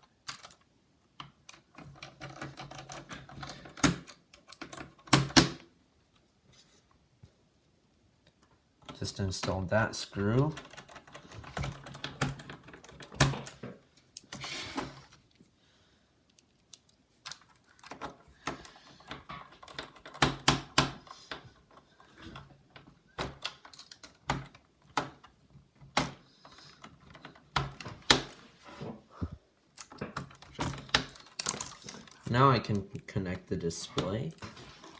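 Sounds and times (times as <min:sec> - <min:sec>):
plastic laptop parts clicking: 0:16.3 - 0:21.9.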